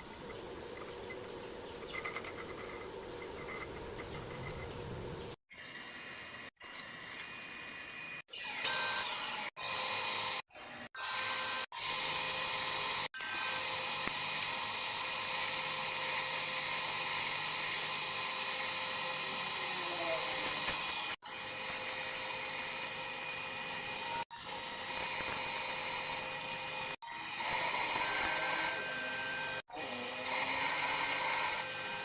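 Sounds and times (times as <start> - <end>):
power drill whining: 8.2 - 32.0.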